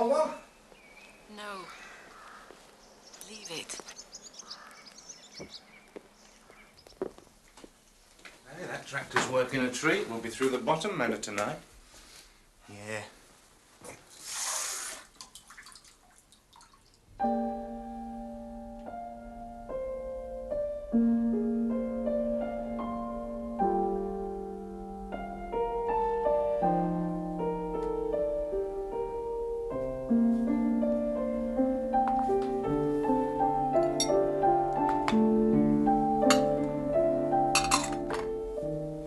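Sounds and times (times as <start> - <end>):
slow piano music: 17.2 - 39.0.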